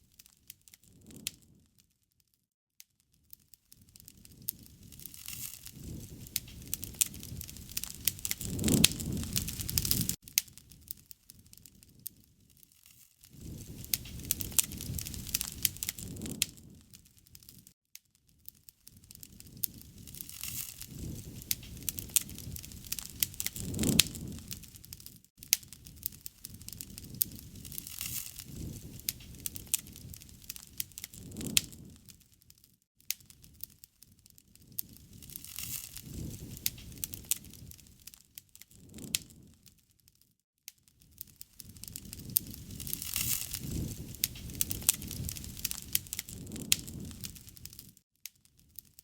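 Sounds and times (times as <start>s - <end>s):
wood fire crackling and popping: 0.0s - 1.8s, 3.0s - 49.0s
low rush of flame: 3.8s - 12.5s, 13.3s - 17.7s, 18.9s - 32.3s, 34.5s - 39.6s, 41.0s - 47.9s.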